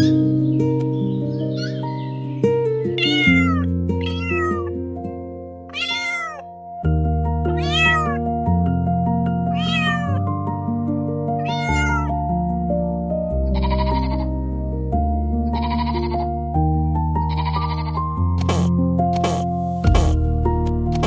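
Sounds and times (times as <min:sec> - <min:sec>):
background music: 0:00.0 - 0:21.0
cat meowing: 0:01.5 - 0:02.0, 0:03.0 - 0:04.7, 0:05.7 - 0:06.6, 0:07.6 - 0:08.2, 0:09.5 - 0:10.2, 0:11.4 - 0:12.1, 0:13.6 - 0:14.3, 0:15.6 - 0:16.2.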